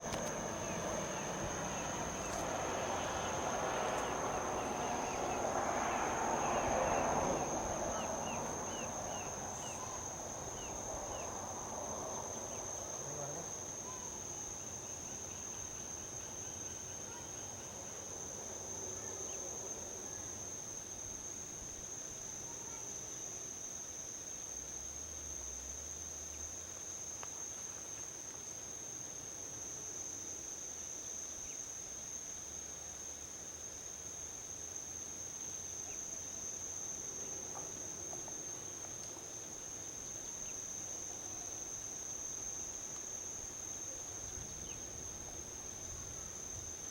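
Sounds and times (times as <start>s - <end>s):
vehicle passing on highway: 0.0s - 13.0s
traffic hiss: 0.0s - 13.8s
crickets trilling: 0.0s - 46.9s.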